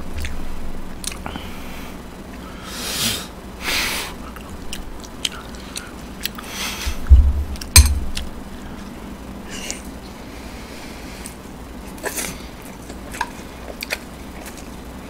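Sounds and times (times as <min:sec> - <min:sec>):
chewing and wet mouth noises: 0:00.1 - 0:00.4, 0:01.0 - 0:01.3, 0:04.2 - 0:06.5, 0:11.2 - 0:15.0
loud low thumps: 0:06.9 - 0:08.6.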